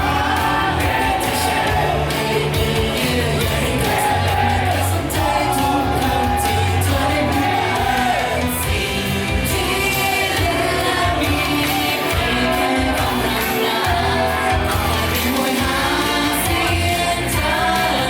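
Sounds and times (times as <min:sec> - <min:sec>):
audience shouting: 0:00.0 - 0:09.4
pop song with heavy bass beat: 0:00.0 - 0:18.0.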